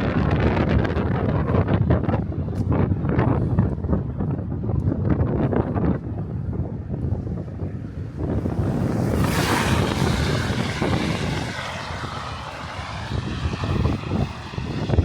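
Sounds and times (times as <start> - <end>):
wind buffeting microphone: 0.0 - 15.0
hissing rush of wind: 6.2 - 15.0.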